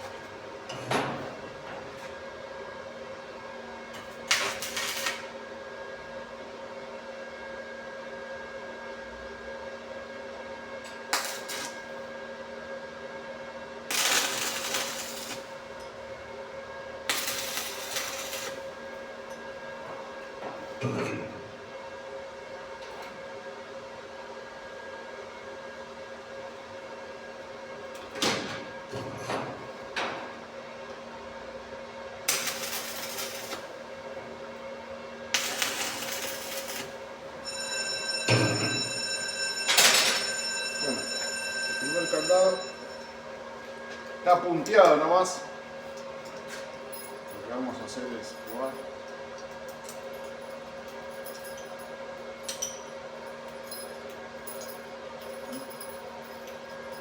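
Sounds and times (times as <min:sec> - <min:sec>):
steady electrical hum: 0:00.0 - 0:06.4, 0:10.7 - 0:22.9, 0:29.5 - 0:57.0
arc welding sputtering: 0:04.2 - 0:05.3, 0:11.1 - 0:11.9, 0:13.9 - 0:15.6, 0:17.1 - 0:18.7, 0:32.3 - 0:33.8, 0:35.3 - 0:37.0.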